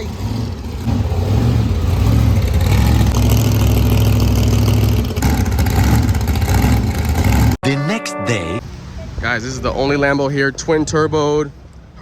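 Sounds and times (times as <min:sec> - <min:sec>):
car engine droning: 0:00.0 - 0:07.6.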